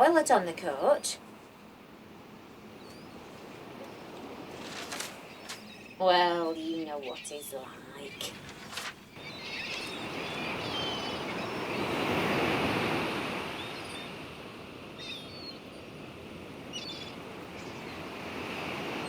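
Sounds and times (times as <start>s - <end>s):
sea surf washing on beach: 2.2s - 15.0s, 15.9s - 19.0s
faint high bird calls: 2.7s - 12.0s.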